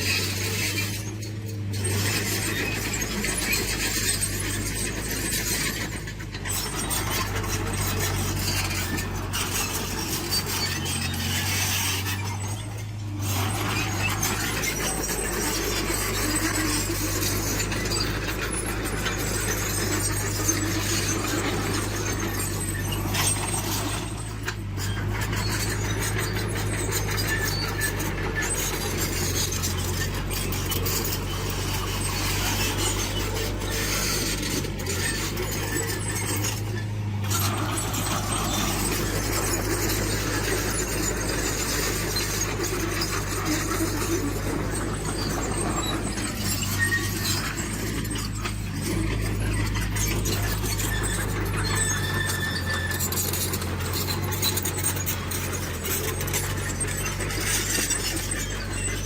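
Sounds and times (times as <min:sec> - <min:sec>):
diesel engine running under load: 0:00.0 - 0:59.0
metallic clanking and squealing: 0:00.0 - 0:59.0.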